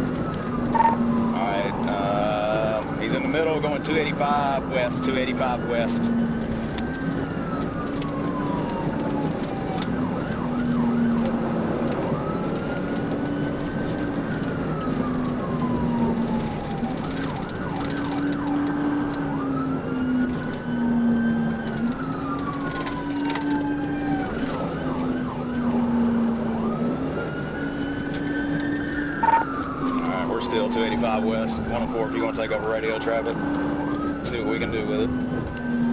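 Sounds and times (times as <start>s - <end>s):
car road noise: 0.0s - 35.9s
police siren wailing: 0.0s - 35.9s
low two-pitch tone: 0.7s - 1.2s, 29.2s - 29.5s.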